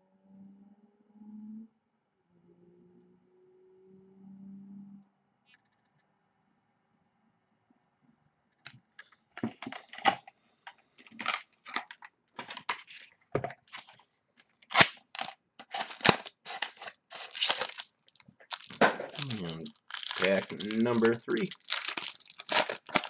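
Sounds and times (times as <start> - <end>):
wrapper crinkling: 9.5 - 10.3, 11.0 - 23.0
foil wrapper tearing: 11.0 - 13.1, 14.6 - 23.0.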